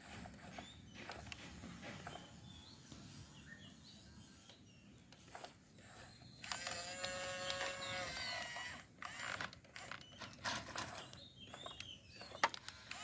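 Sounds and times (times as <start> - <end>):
clicks and scraping: 4.4 - 13.0
small electric motor whining: 5.2 - 13.0.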